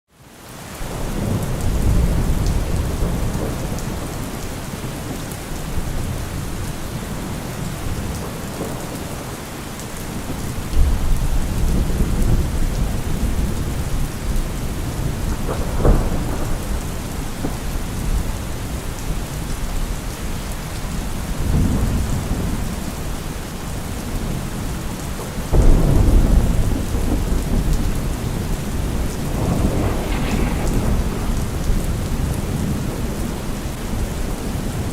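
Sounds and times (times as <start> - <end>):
heavy rain: 0.1 - 34.9
thunder rumbling: 0.9 - 9.3, 10.1 - 19.8, 23.8 - 34.9.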